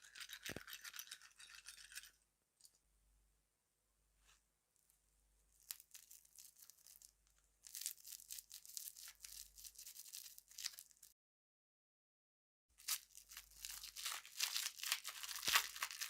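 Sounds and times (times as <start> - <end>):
plastic packaging crinkling and tearing: 5.6 - 11.1, 12.8 - 16.0.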